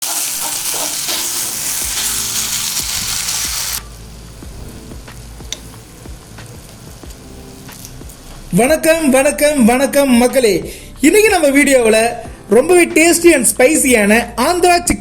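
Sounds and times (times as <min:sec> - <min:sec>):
chicken sizzling in hot oil: 0:00.0 - 0:08.3.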